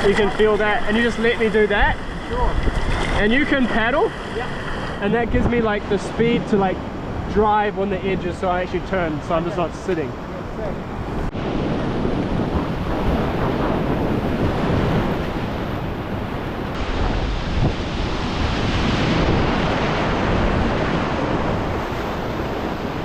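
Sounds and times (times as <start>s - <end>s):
whitewater river rushing: 0.0s - 6.6s
wind buffeting microphone: 0.0s - 23.0s.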